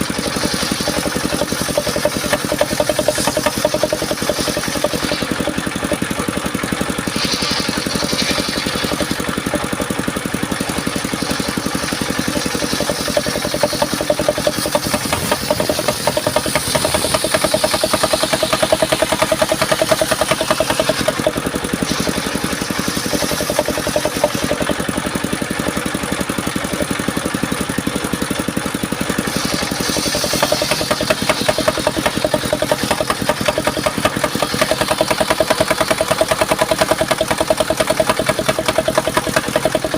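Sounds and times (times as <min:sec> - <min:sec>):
sawmill engine running: 0:00.0 - 0:39.9
high-pitched saw whine: 0:06.9 - 0:09.7.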